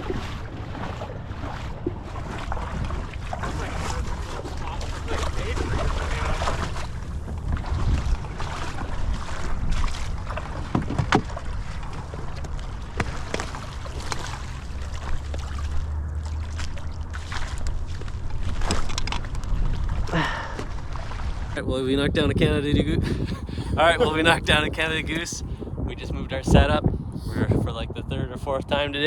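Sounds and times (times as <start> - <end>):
water sloshing: 0.0 - 27.1
wind rumble on microphone: 0.0 - 29.0.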